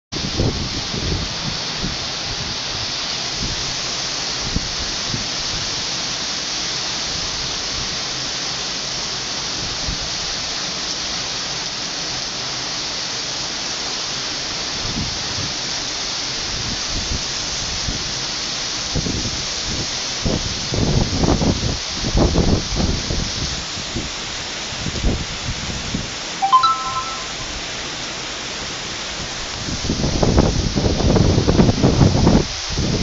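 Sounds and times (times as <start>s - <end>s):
wind buffeting microphone: 0.2s - 2.7s
heavy rain pouring: 0.2s - 26.4s, 27.6s - 33.0s.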